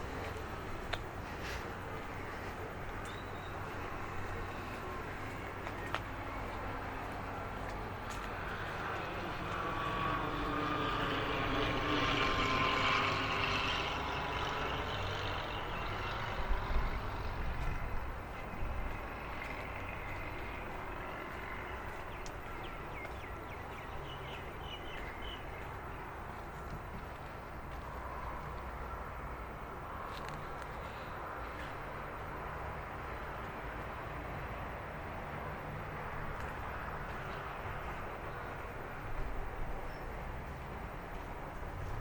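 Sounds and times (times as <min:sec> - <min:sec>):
aircraft passing over: 0:06.2 - 0:25.0.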